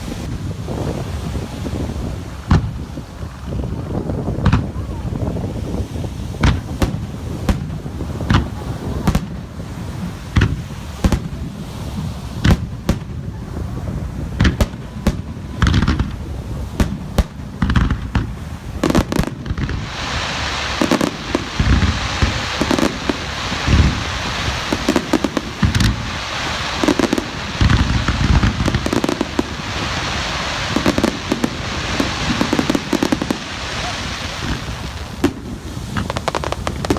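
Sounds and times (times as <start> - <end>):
fireworks bangs and booms: 0.0 - 36.9
steady hiss: 14.5 - 36.9.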